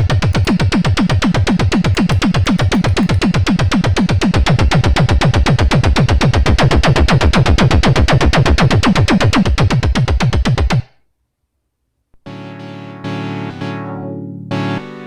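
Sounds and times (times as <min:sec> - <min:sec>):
synthesizer repeated bass notes: 0:00.4 - 0:03.9.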